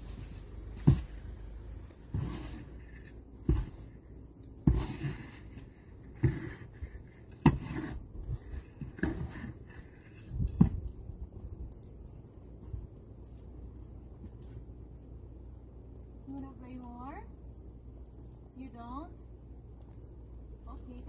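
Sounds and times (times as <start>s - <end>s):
snow shovel crunching and scraping: 2.1s - 3.9s, 4.6s - 8.0s.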